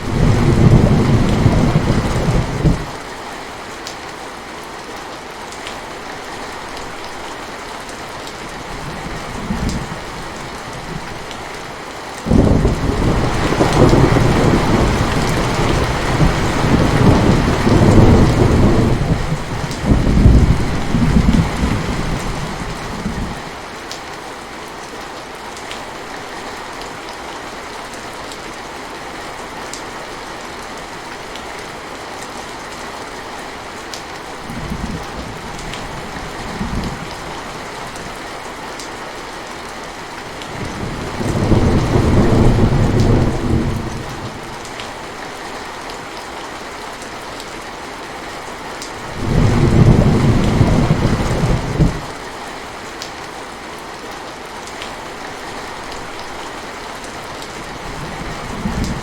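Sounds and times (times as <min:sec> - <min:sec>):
thunder rolling: 0:00.0 - 0:02.9, 0:12.3 - 0:23.4, 0:40.6 - 0:44.4, 0:49.1 - 0:52.1
heavy rain: 0:00.0 - 0:59.0.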